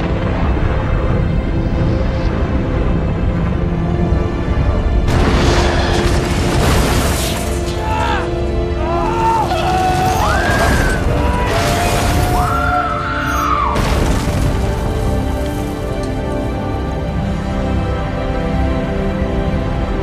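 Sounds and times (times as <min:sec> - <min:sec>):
dramatic orchestral music: 0:00.0 - 0:20.0
deep booms and crashing impacts: 0:04.5 - 0:07.6, 0:13.8 - 0:16.6.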